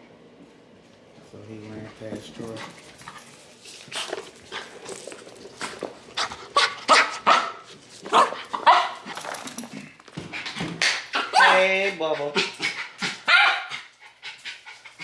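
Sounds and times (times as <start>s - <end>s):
dog barking and yipping: 6.6s - 9.1s, 10.9s - 11.9s, 12.5s - 13.9s.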